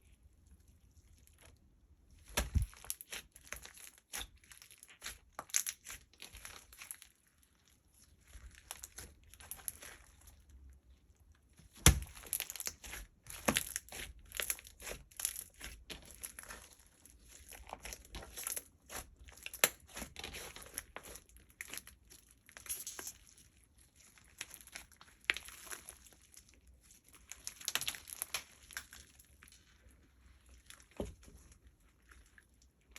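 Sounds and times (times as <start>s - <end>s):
slime crackling and popping: 2.2s - 7.0s, 11.7s - 23.3s, 23.9s - 29.5s.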